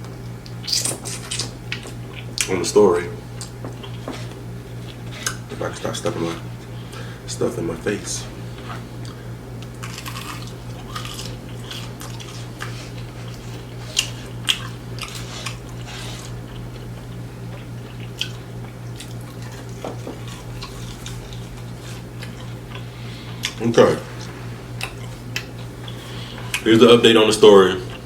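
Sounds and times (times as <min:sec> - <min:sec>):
person chewing crunchy food: 0:00.5 - 0:02.5, 0:08.4 - 0:26.7
low hum: 0:06.4 - 0:26.8.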